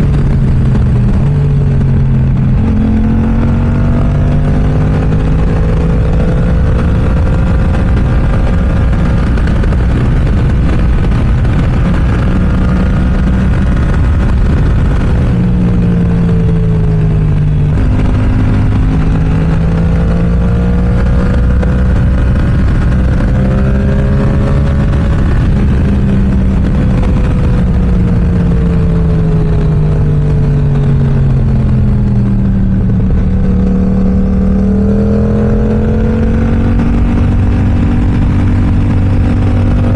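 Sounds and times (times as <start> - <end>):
motorcycle engine under load: 0.0 - 39.9.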